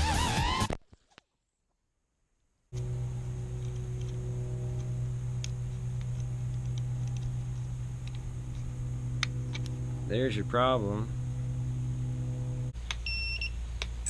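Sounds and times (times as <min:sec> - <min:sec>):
steady electrical hum: 0:02.7 - 0:14.0.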